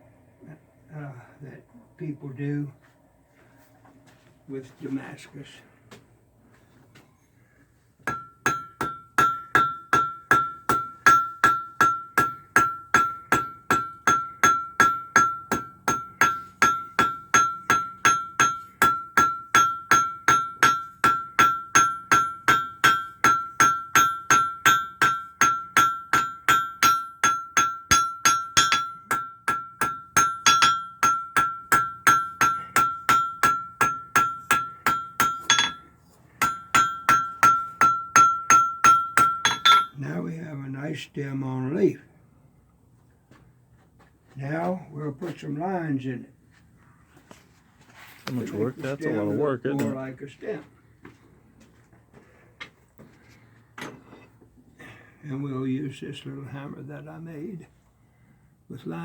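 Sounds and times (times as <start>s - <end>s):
hammer striking iron on anvil: 8.0s - 40.0s.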